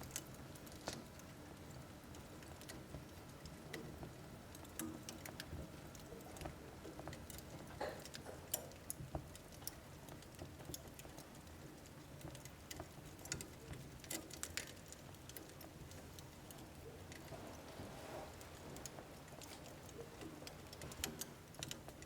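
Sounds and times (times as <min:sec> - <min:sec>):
burning logs crackling: 0:00.0 - 0:22.0.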